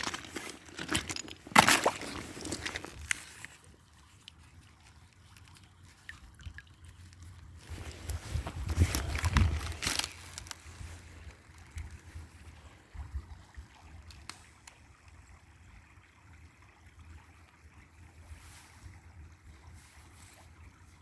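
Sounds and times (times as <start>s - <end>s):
water splashing: 0.0s - 3.6s
creek running: 0.0s - 21.0s
wind rumble on microphone: 7.6s - 14.1s.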